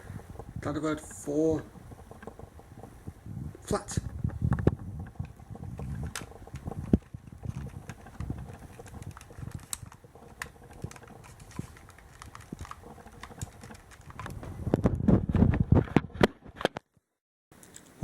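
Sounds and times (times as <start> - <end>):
plastic toy clicking: 4.2 - 14.4.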